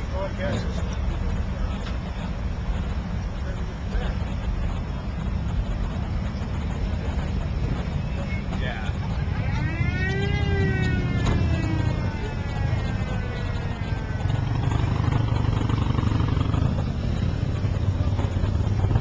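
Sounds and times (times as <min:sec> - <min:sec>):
low engine rumble: 0:00.0 - 0:19.0
vehicle engine winding down: 0:08.9 - 0:19.0.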